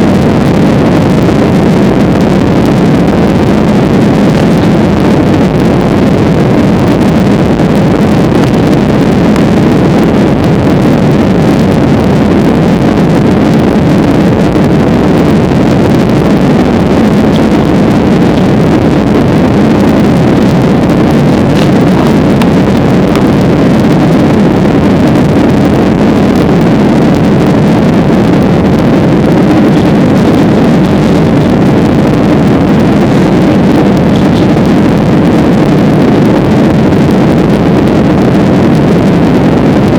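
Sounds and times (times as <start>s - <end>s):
plane engines droning: 14.9s - 36.7s.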